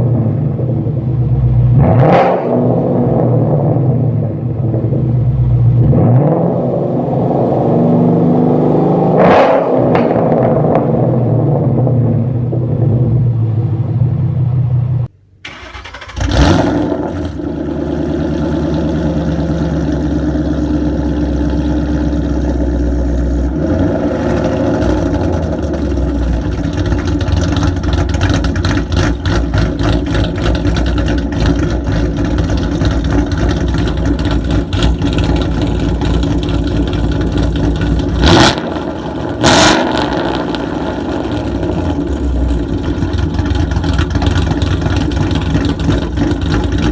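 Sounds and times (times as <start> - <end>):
car engine revving: 0.0 - 46.9
car engine starting and idling: 0.0 - 46.9
other engine idling: 11.7 - 46.9.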